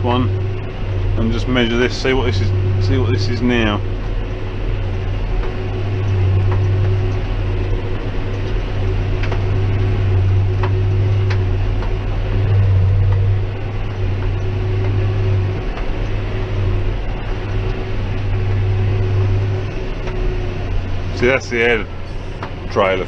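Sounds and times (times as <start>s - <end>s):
baler working: 0.0s - 23.0s
tractor engine drone: 0.0s - 23.0s.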